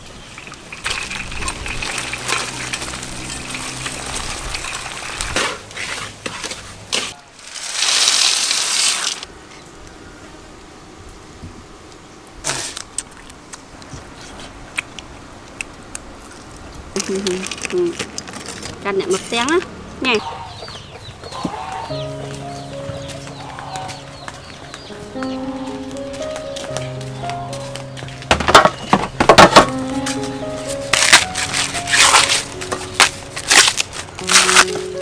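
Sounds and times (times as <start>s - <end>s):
batter sizzling in hot oil: 0.1s - 5.4s
metal utensils clinking: 0.2s - 5.6s
peanuts poured into wok: 7.4s - 9.2s.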